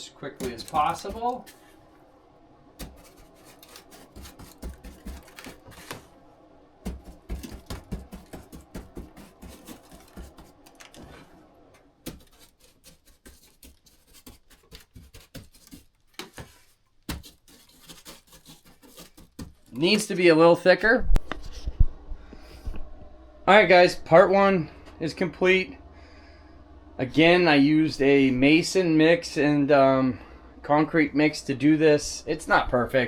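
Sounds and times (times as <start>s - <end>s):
brush dabbing wet mortar: 0.0s - 1.8s, 2.8s - 6.1s, 6.9s - 11.2s, 12.0s - 20.2s.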